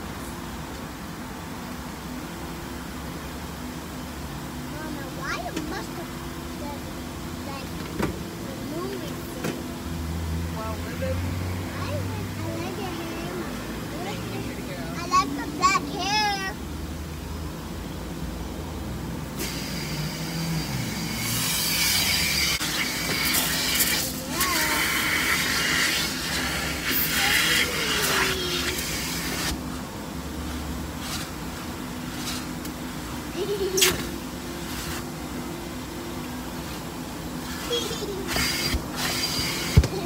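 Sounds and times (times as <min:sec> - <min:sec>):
steady low hum: 0:00.0 - 0:40.0
loud hiss of spraying water: 0:19.4 - 0:29.8, 0:30.5 - 0:35.3, 0:36.6 - 0:40.0.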